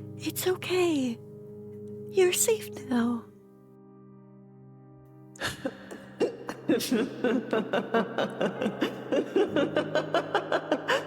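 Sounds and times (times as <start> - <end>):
woman laughing: 5.4 - 11.0.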